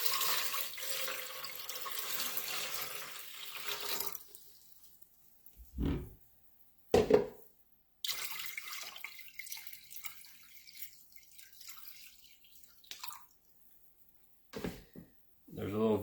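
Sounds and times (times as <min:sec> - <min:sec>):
water pouring into plastic reservoir: 0:00.0 - 0:04.6, 0:08.0 - 0:13.4.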